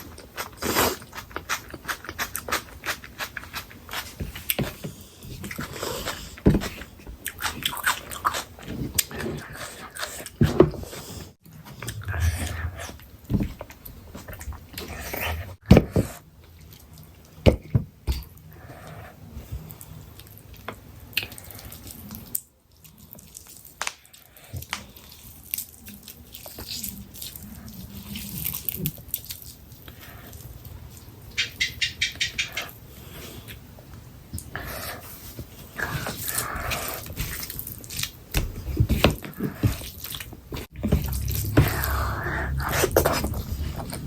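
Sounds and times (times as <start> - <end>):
wet eating sounds: 0.0 - 15.6, 18.4 - 31.1, 34.4 - 44.0.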